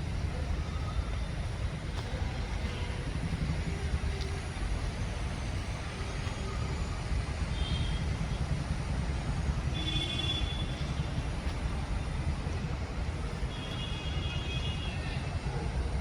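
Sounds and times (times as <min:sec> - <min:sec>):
city traffic rumble: 0:00.0 - 0:16.0.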